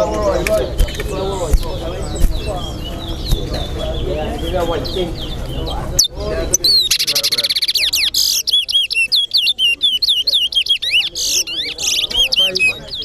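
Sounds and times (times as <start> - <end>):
finch singing: 0.0 - 13.0.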